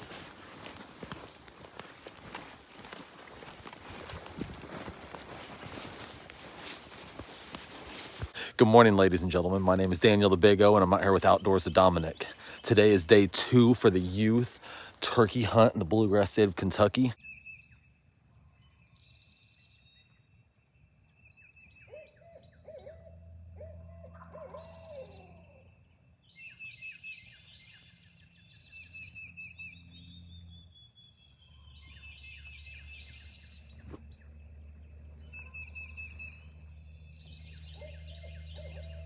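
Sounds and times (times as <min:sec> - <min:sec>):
birds singing high trills: 0:20.8 - 0:39.0.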